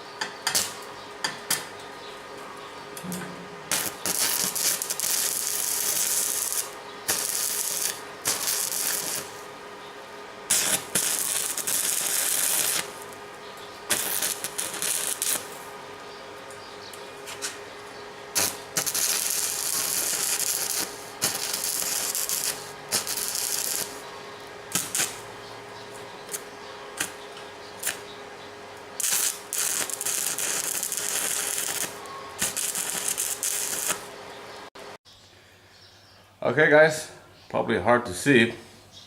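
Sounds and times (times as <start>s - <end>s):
steady hum: 0.0s - 35.5s
arc welding crackling hiss: 0.5s - 0.8s, 3.6s - 9.5s, 10.5s - 13.2s, 13.9s - 15.7s, 18.3s - 24.1s, 24.7s - 25.3s, 27.0s - 27.2s, 27.8s - 28.1s, 29.0s - 34.1s.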